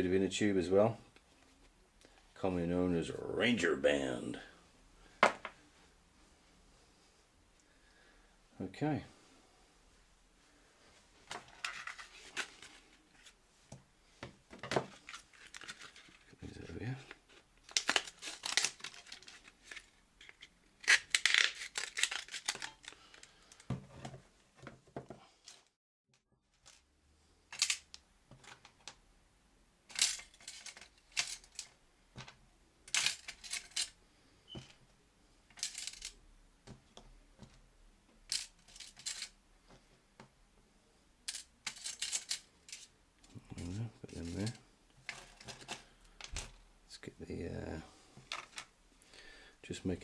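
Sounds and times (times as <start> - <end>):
small items clicking: 17.6 - 23.7, 29.9 - 31.8, 35.5 - 36.2, 38.3 - 39.3, 41.3 - 42.9.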